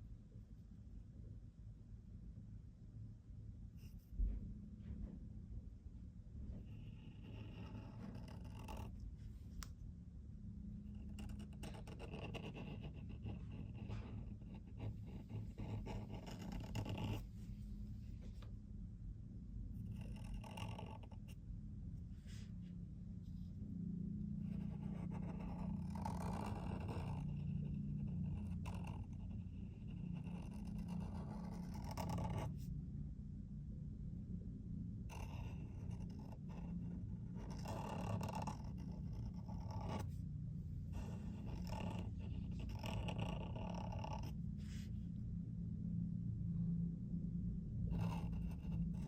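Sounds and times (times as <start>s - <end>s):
steady low hum: 0.0s - 49.0s
pen scratching on paper: 6.5s - 9.0s, 10.8s - 17.4s, 19.9s - 21.4s, 24.4s - 32.7s, 35.1s - 40.2s, 40.9s - 44.9s, 47.9s - 49.0s.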